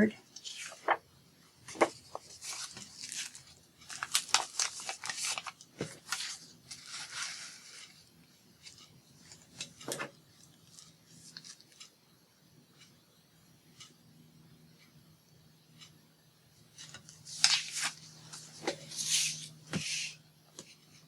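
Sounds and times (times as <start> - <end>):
paper rustling and clicking: 0.4 - 1.0, 1.6 - 8.0, 16.8 - 20.7.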